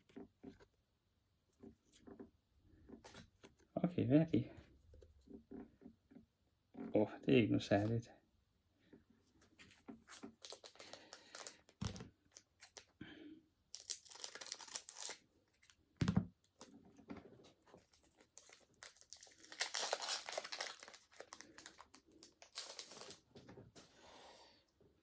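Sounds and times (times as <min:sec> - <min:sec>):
foil wrapper crinkling and tearing: 0:10.3 - 0:12.9, 0:13.7 - 0:15.8, 0:17.8 - 0:23.3.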